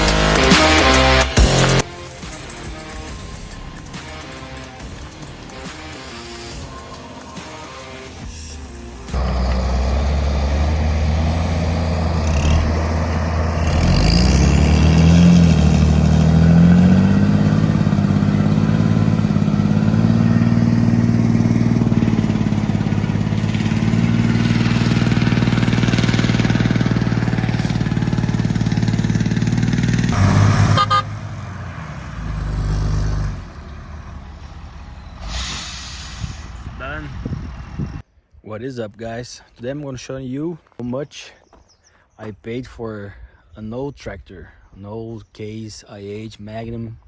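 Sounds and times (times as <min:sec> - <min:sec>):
tractor diesel engine running: 0:00.0 - 0:38.0
low rumble: 0:31.1 - 0:38.0.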